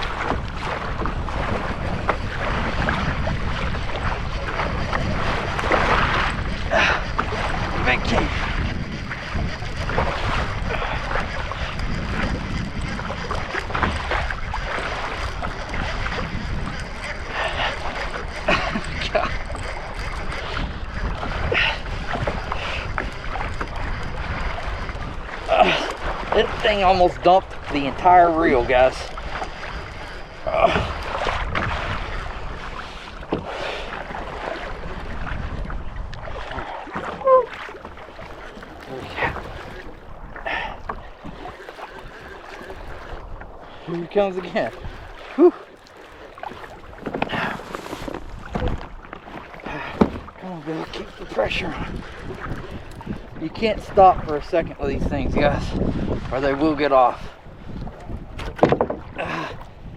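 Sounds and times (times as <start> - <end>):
water lapping against hull: 0.0 - 59.9
wind buffeting microphone: 0.0 - 59.9
small knocks: 58.4 - 59.1.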